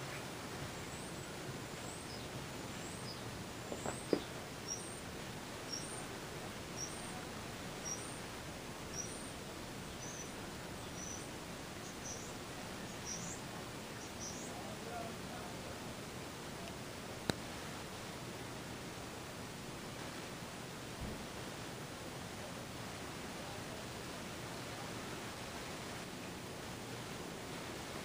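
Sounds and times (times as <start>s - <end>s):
steady hiss: 0.0s - 28.0s
small bird chirping: 0.8s - 5.0s, 5.6s - 8.2s, 8.9s - 14.6s.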